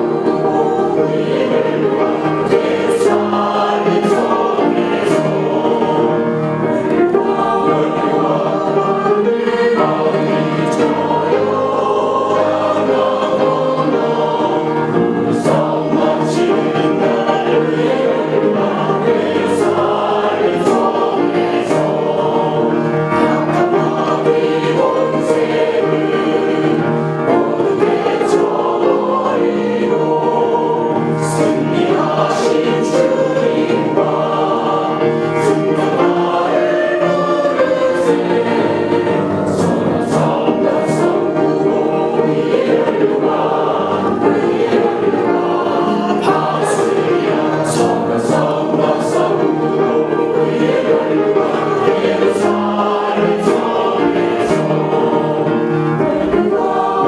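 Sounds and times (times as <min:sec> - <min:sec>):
congregation singing a hymn: 0:00.0 - 0:57.0.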